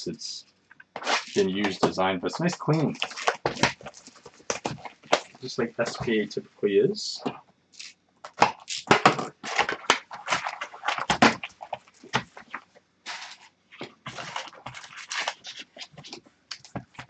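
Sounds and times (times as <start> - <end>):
cards and packaging rustling: 1.0 - 6.3, 7.8 - 17.0.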